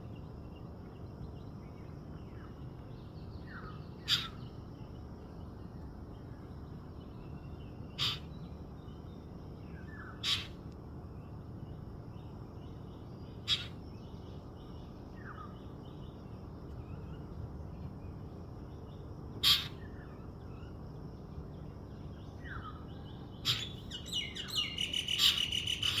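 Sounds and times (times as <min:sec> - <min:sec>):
faint birds chirping: 0:00.0 - 0:26.0
bird calling sharply: 0:04.1 - 0:04.4, 0:08.0 - 0:08.3, 0:10.2 - 0:10.6, 0:13.5 - 0:13.8, 0:19.4 - 0:19.8, 0:23.4 - 0:26.0.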